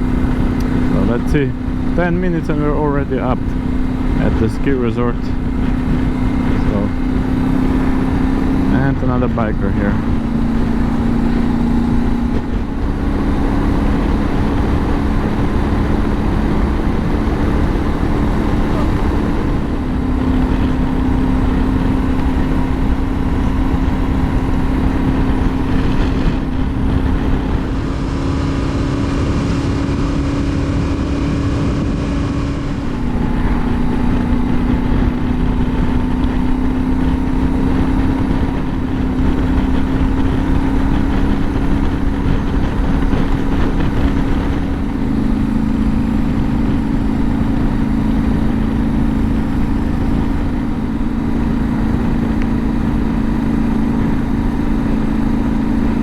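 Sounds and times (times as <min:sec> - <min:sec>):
motorcycle engine under load: 0:00.0 - 0:56.0
wind and road noise: 0:00.0 - 0:56.0.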